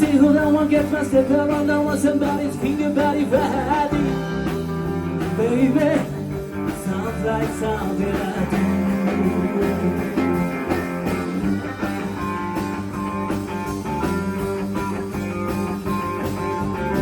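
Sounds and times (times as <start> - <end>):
country band with guitar: 0.0 - 17.0.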